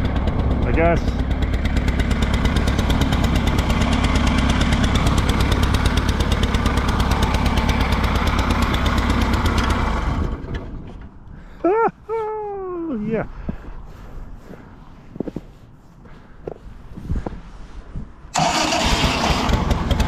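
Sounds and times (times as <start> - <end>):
tractor engine running: 0.0 - 11.4, 18.3 - 20.0.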